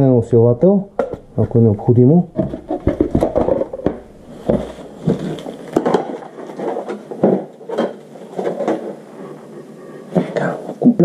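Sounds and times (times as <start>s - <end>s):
parts knocking and rattling: 2.3s - 8.9s
rustling: 2.4s - 9.6s.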